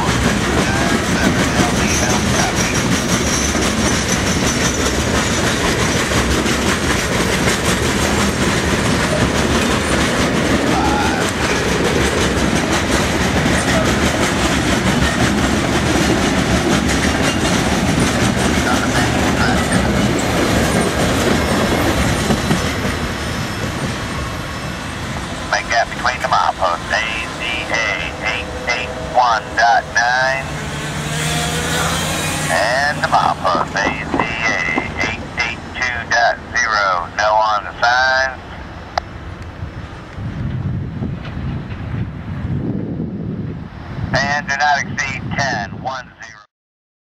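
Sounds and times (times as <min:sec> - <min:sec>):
wheels clacking over rail joints: 0:00.0 - 0:24.0, 0:28.0 - 0:35.4
freight train rumbling past: 0:00.0 - 0:46.0.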